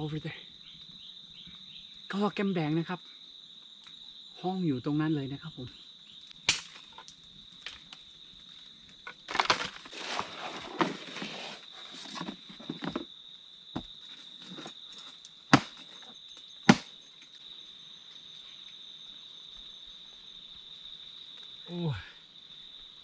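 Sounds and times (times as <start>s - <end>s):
insects droning: 0.0s - 23.0s
rustling or crackling: 9.3s - 13.1s.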